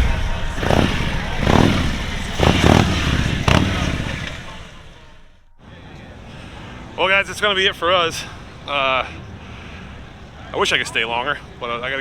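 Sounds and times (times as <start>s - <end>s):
motorcycle engine throttle bursts: 0.6s - 5.3s.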